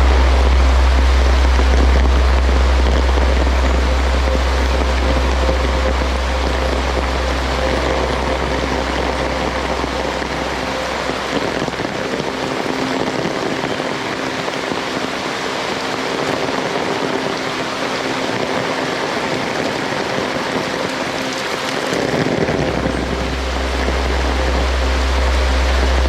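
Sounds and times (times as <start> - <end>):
low rumble: 0.0 - 14.6, 21.4 - 26.0
heavy rain pattering: 0.0 - 26.0.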